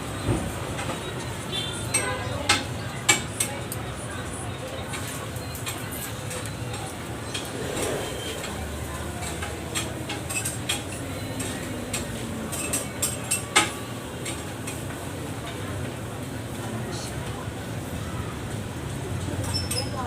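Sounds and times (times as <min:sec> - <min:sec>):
steady background noise: 0:00.0 - 0:20.0
cutlery and dishes clinking: 0:05.0 - 0:14.8.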